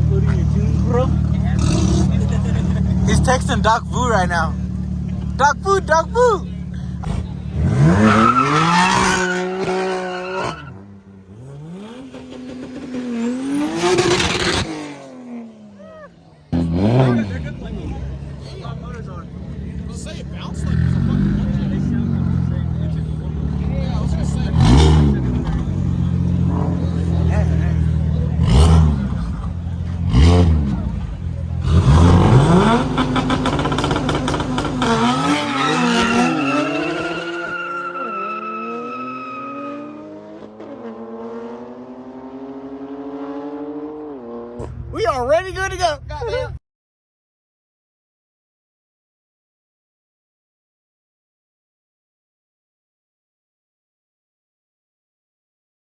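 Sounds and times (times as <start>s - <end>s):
car engine revving: 0.0s - 15.8s, 16.4s - 45.5s
tyres squealing: 31.7s - 40.0s.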